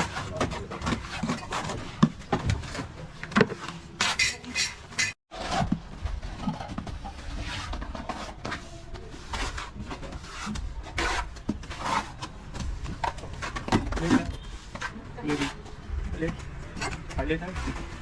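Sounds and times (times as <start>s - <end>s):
hand tool scraping a surface: 4.0s - 5.2s, 7.1s - 12.3s.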